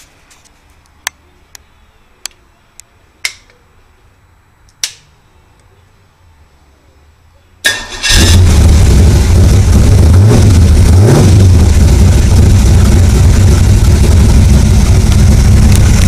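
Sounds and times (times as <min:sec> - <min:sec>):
loud engine starting and running: 0:07.7 - 0:16.0.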